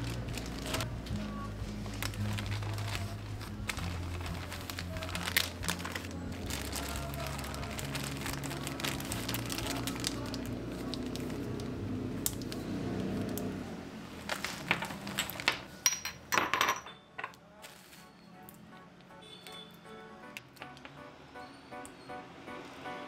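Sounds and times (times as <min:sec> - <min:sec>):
plastic bag crinkling: 0:00.0 - 0:13.4, 0:14.2 - 0:15.6
sharp crackles and taps: 0:09.1 - 0:12.6.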